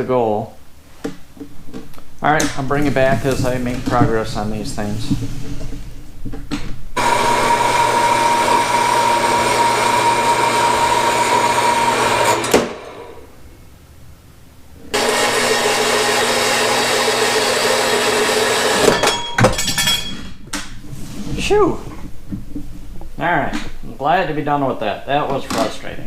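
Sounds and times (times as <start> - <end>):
power tool whining: 7.0 - 13.3, 14.9 - 19.1.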